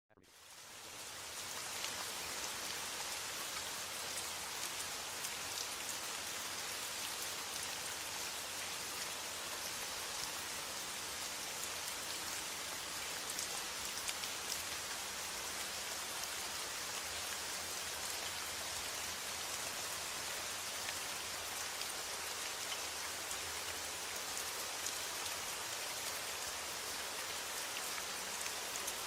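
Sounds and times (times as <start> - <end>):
steady rain falling: 0.1 - 29.0.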